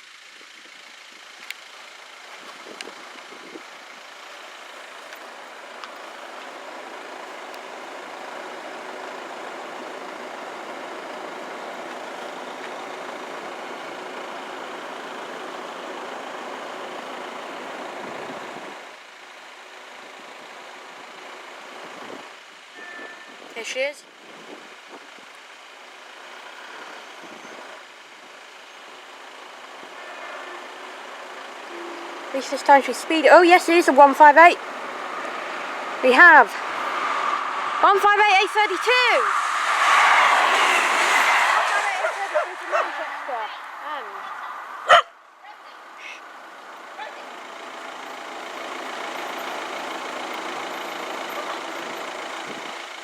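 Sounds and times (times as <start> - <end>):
diesel train passing: 28.4 - 53.0
train rushing past: 34.8 - 44.1.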